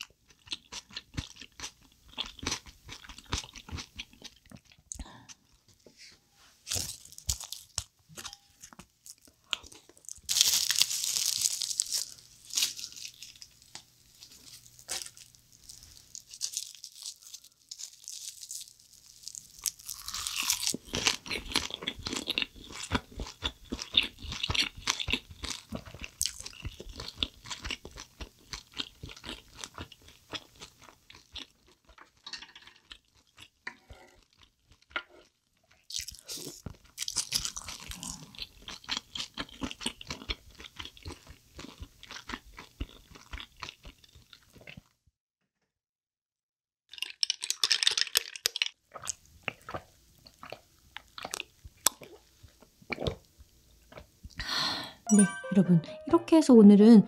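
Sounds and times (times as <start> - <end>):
crunching and chewing: 0.0 - 5.6, 6.6 - 45.0, 46.9 - 54.4
crisp crackle: 6.6 - 21.1.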